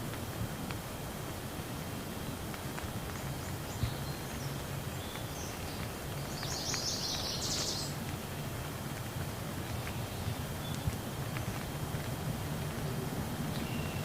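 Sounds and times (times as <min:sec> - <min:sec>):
steady rain falling: 0:00.0 - 0:14.0
small bird twittering: 0:03.4 - 0:08.0.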